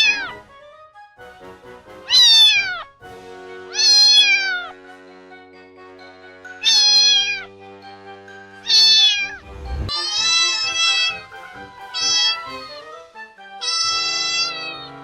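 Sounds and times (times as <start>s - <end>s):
cat meowing: 0.0s - 0.4s, 2.1s - 2.9s, 3.7s - 4.8s, 6.6s - 7.5s, 8.6s - 11.3s, 11.9s - 12.6s, 13.6s - 15.0s
background music low notes: 0.0s - 15.0s
brief low rumble: 9.4s - 9.9s.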